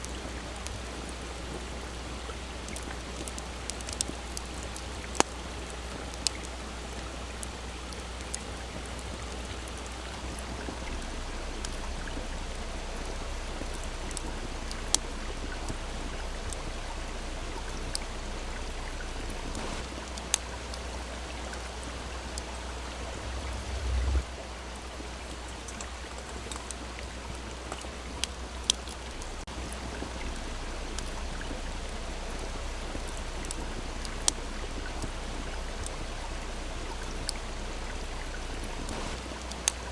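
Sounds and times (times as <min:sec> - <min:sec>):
campfire crackling and popping: 0:00.0 - 0:39.9
softly flowing stream: 0:00.0 - 0:39.9
brief low rumble: 0:22.9 - 0:24.4.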